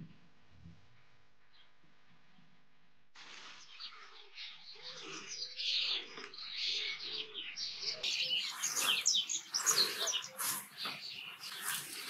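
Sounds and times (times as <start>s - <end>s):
small birds chirping: 3.2s - 12.0s.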